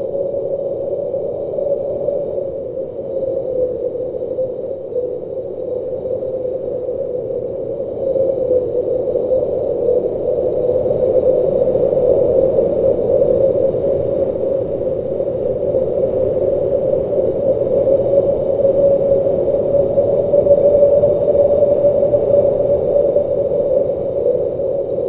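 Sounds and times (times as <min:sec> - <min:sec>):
blizzard wind rushing: 0:07.4 - 0:25.0.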